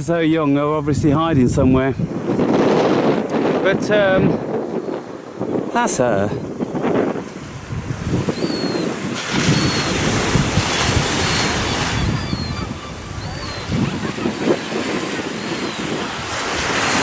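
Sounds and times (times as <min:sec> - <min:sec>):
wind gusting on microphone: 0:00.0 - 0:17.0
waves washing on shore: 0:01.6 - 0:17.0
high bird calls: 0:08.3 - 0:10.0, 0:11.1 - 0:16.2.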